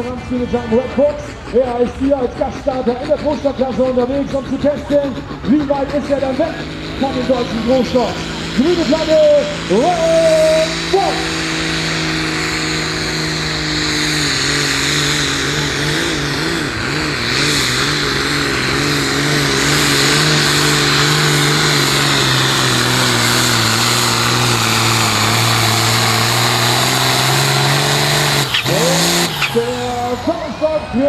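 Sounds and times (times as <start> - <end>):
pulling tractor diesel engine: 0.0 - 31.0.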